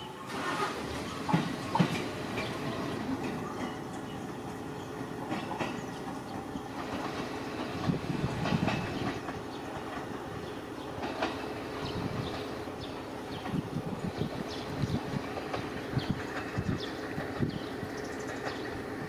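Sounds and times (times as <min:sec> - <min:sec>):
electric train rumbling on rails: 0:00.0 - 0:19.0.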